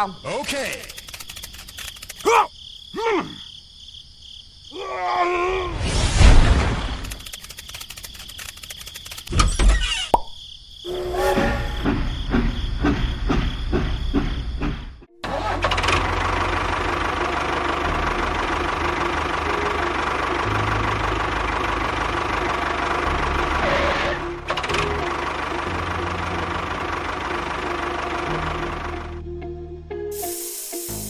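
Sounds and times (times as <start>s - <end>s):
engine rumbling: 10.9s - 29.3s.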